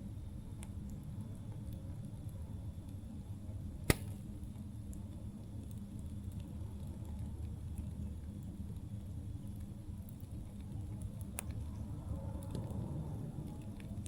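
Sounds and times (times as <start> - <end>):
campfire crackling: 0.1 - 14.0
loud sharp pop: 3.8 - 4.2.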